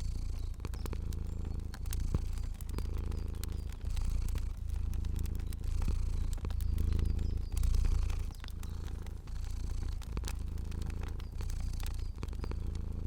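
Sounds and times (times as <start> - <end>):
cat purring: 0.0 - 13.0
fire crackling: 0.0 - 13.0.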